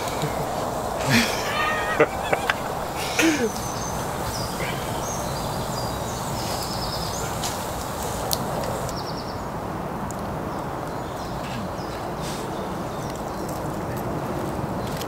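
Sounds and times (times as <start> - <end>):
small birds chirping and trilling: 0.0 - 9.5.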